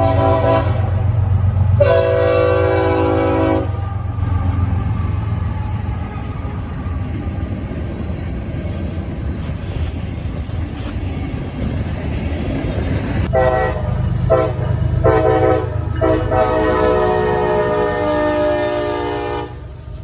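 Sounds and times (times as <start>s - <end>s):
train air horn blasts: 0.0s - 5.9s, 13.3s - 19.8s
diesel locomotive rumbling: 0.0s - 20.0s.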